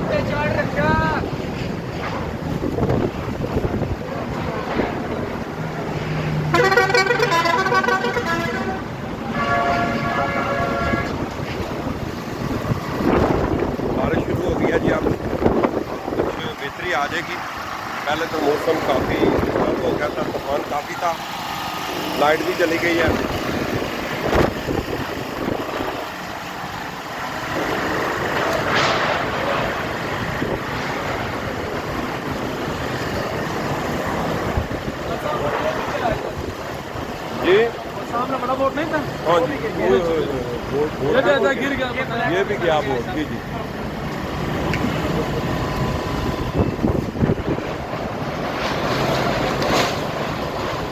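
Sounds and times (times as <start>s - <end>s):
storm wind on microphone: 0.7s - 5.6s, 10.6s - 16.9s, 18.8s - 20.5s, 23.0s - 26.1s, 29.0s - 37.3s, 45.8s - 49.5s.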